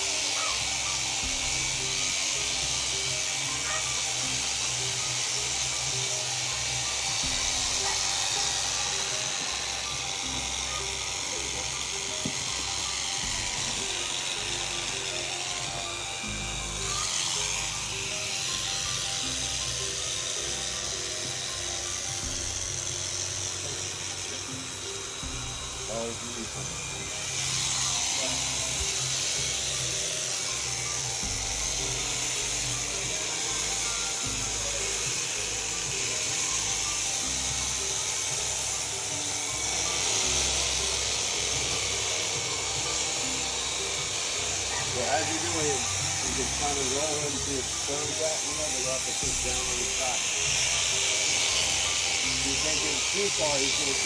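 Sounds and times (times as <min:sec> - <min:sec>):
electric shearing handpiece running: 0:00.0 - 0:54.0.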